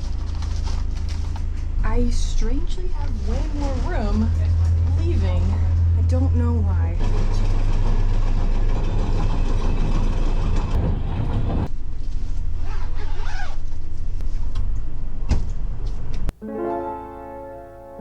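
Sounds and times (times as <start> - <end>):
vehicle rumble from inside: 0.0 - 16.3
gentle piano music: 16.3 - 18.0.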